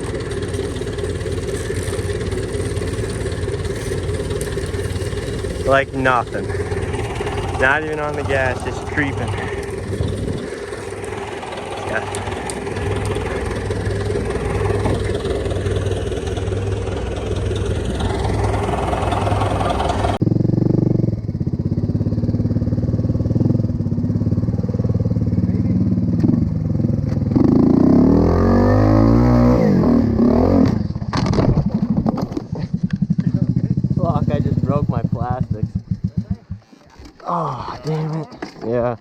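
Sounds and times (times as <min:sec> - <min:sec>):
dirt bike revving: 0:00.0 - 0:31.0, 0:32.4 - 0:36.9
dirt bike engines running: 0:00.0 - 0:39.0.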